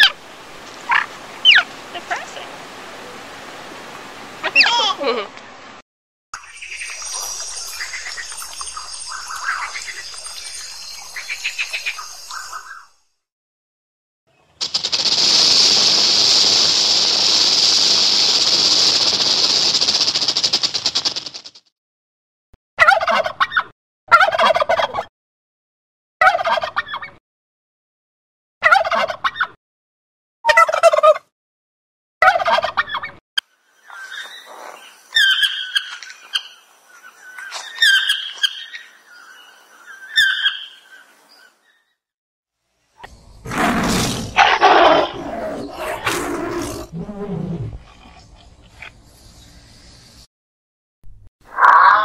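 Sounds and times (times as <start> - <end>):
tiger vocalization: 43.4 - 48.9.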